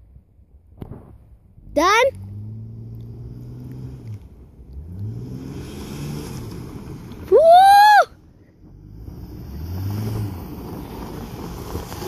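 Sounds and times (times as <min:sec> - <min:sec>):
car engine revving: 0:01.6 - 0:07.6, 0:08.4 - 0:12.0
person whooping: 0:07.3 - 0:08.1.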